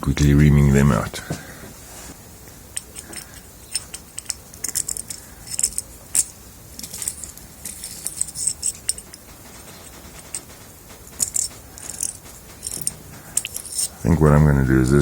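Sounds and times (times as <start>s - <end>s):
metallic reamer clicks: 2.8s - 14.0s.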